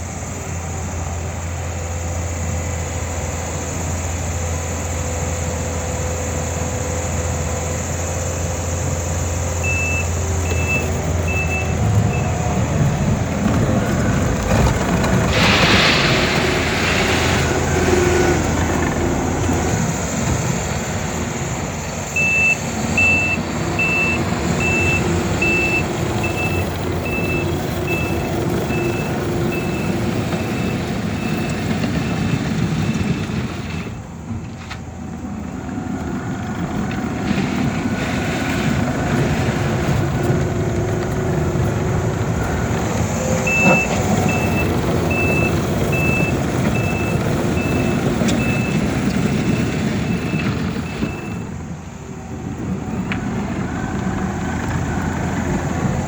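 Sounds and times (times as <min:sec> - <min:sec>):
diesel engine drone: 0:00.0 - 0:56.0
backup alarm beeping: 0:09.6 - 0:13.2, 0:22.1 - 0:33.2, 0:43.4 - 0:51.5.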